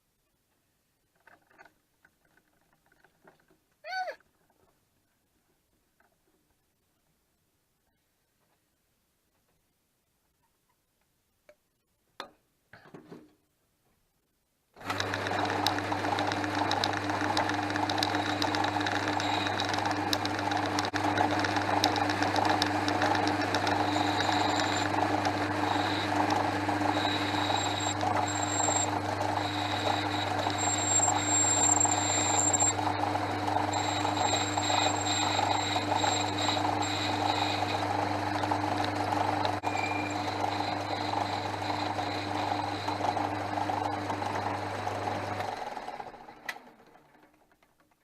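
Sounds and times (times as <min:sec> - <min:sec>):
metal lathe humming: 0:14.8 - 0:46.2
thin high whine: 0:18.1 - 0:19.8, 0:23.0 - 0:43.3.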